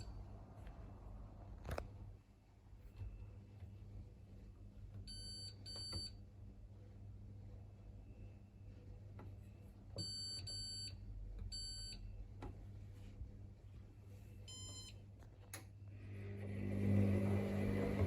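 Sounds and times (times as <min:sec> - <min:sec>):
washing machine beeping: 0:05.0 - 0:06.2, 0:10.0 - 0:12.2, 0:14.4 - 0:15.1, 0:16.0 - 0:18.0.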